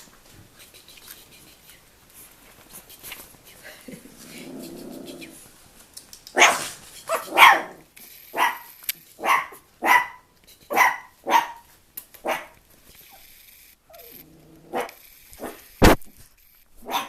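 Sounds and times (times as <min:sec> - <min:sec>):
puppy barking: 0:06.3 - 0:12.6, 0:14.7 - 0:15.6, 0:16.8 - 0:17.0.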